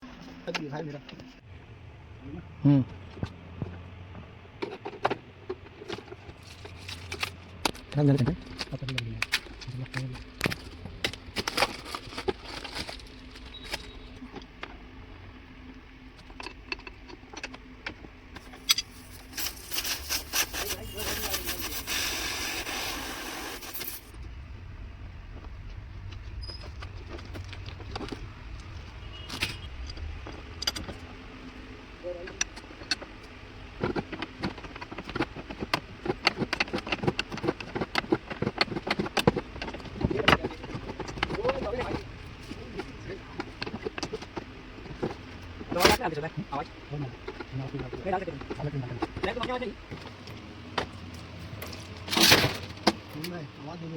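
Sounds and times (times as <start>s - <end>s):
faint steady hum: 0.0s - 53.9s
hand tools clicking and knocking: 4.6s - 14.7s, 32.1s - 53.4s.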